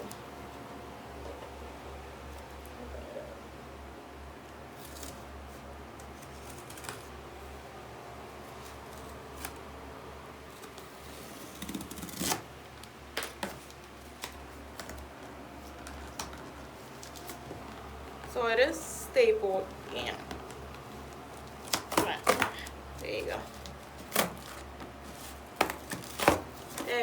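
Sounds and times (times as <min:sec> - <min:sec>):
low steady hum: 0:00.0 - 0:27.0
cardboard packaging being opened: 0:10.5 - 0:18.2, 0:19.9 - 0:27.0.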